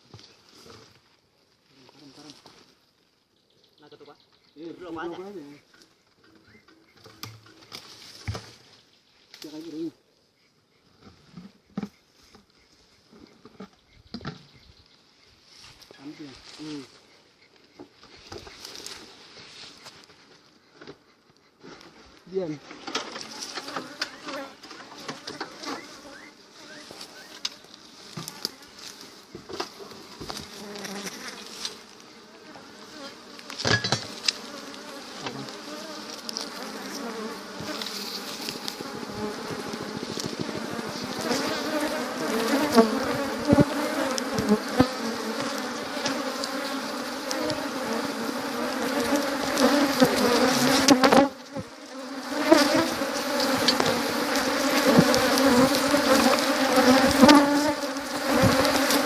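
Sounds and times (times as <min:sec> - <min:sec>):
honeybees buzzing: 0:22.8 - 0:59.0.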